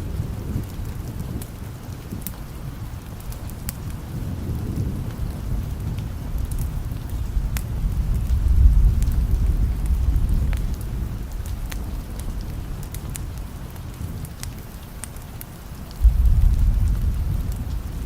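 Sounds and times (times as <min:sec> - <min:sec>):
sharp crackles: 0:00.0 - 0:18.0
steady rain: 0:00.0 - 0:18.0
rolling thunder: 0:03.8 - 0:14.2, 0:16.0 - 0:18.0.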